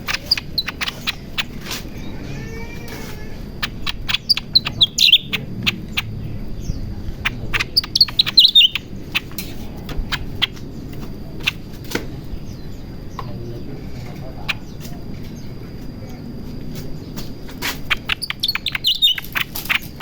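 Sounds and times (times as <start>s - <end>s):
bird calling sharp chips: 0.0s - 6.2s, 7.2s - 12.0s, 17.2s - 20.0s.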